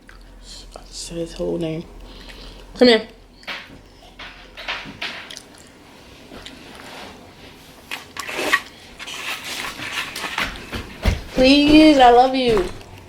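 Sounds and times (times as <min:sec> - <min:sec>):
person chewing food: 0:05.3 - 0:09.8.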